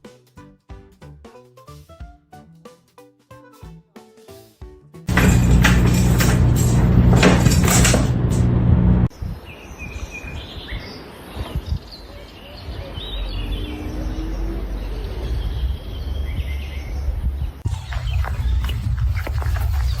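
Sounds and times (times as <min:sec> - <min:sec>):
low rumbling background: 0:05.1 - 0:09.1
high chirping calls: 0:09.5 - 0:20.0.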